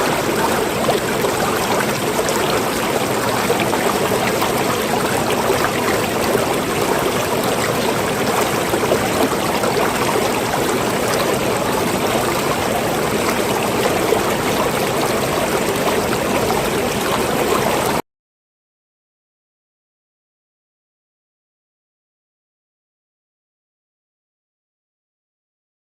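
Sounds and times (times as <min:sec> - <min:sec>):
water running and splashing: 0:00.0 - 0:18.0.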